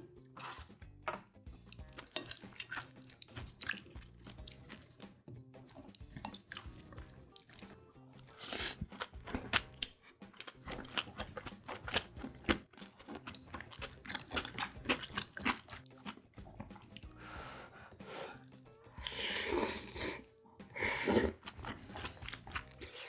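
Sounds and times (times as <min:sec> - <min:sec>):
faint background music: 0:00.0 - 0:23.0
close chewing crunches: 0:08.5 - 0:17.1, 0:21.4 - 0:23.0.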